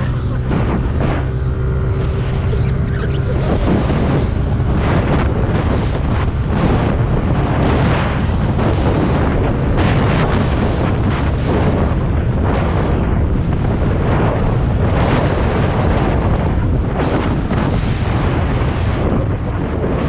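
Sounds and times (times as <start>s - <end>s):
scooter engine running: 0.0s - 9.8s
wind buffeting microphone: 0.0s - 20.0s.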